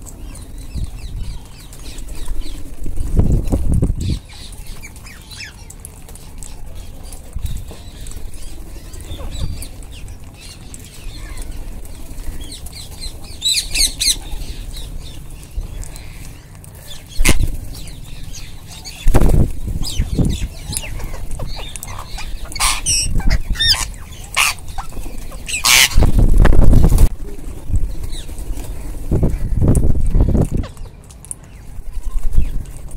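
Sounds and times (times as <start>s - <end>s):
parakeets calling shrilly: 12.4s - 15.2s, 15.9s - 26.1s
wing flapping: 19.0s - 30.7s.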